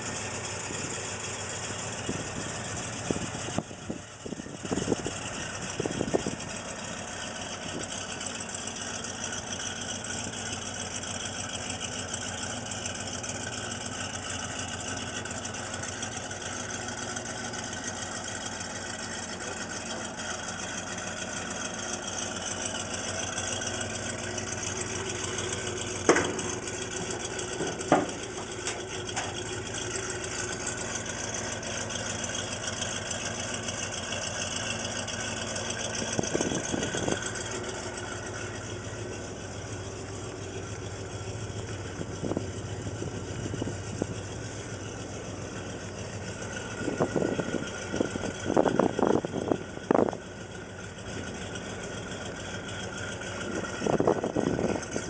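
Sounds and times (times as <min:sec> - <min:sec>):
car engine idling: 0:00.0 - 0:55.0
sharp clunks: 0:26.0 - 0:29.6.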